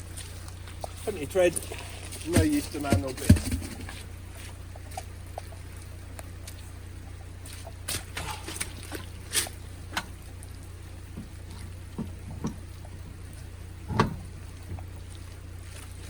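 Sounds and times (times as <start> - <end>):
steady low hum: 0.0 - 16.0
knocks and clunks on car wheels: 2.1 - 4.1, 11.1 - 13.2, 13.8 - 15.0.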